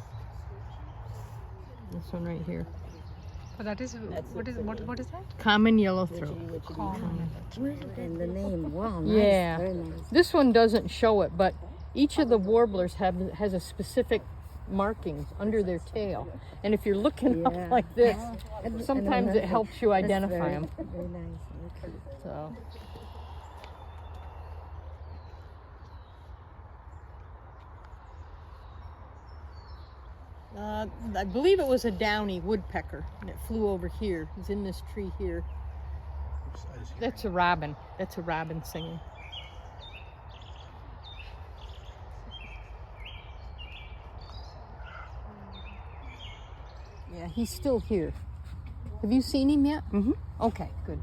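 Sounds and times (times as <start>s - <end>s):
small birds calling: 33.3s - 51.0s.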